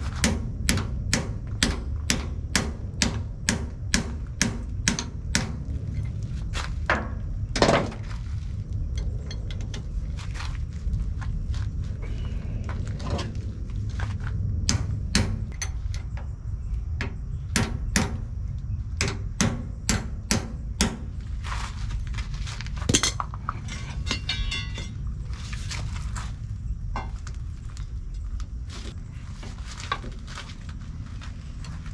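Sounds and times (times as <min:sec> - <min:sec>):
low rumble: 0:00.0 - 0:31.9
hammer striking steel: 0:00.2 - 0:05.6, 0:22.9 - 0:24.9.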